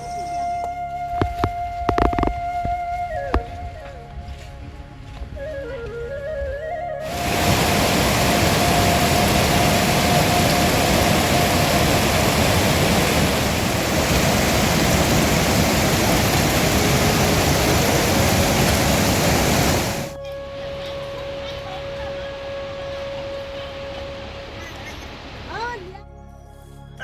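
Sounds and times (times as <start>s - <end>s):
loud steady rushing noise: 7.0s - 25.8s.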